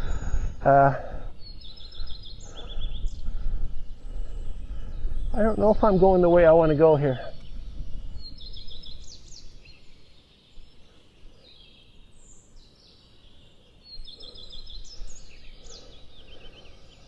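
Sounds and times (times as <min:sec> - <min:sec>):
songbirds singing: 0:00.0 - 0:17.0
steady low rumble: 0:01.3 - 0:09.3.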